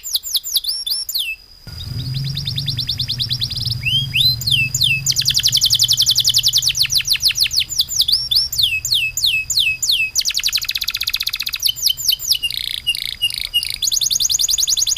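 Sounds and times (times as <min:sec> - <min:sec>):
songbird singing trills: 0:00.5 - 0:14.8
thin steady high tone: 0:01.7 - 0:12.5.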